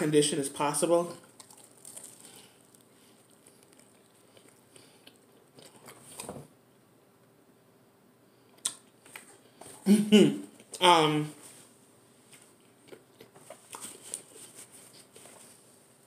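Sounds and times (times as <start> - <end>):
person chewing crispy food: 1.2 - 6.4, 12.5 - 15.6.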